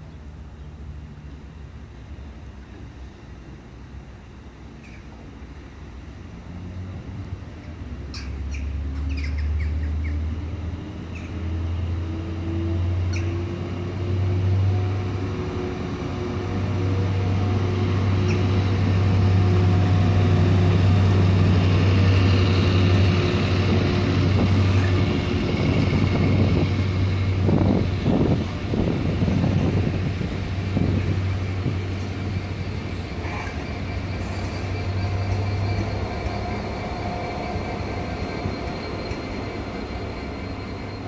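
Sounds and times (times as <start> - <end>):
locomotive engine humming: 0.0 - 41.0
short high squeaks: 33.2 - 41.0.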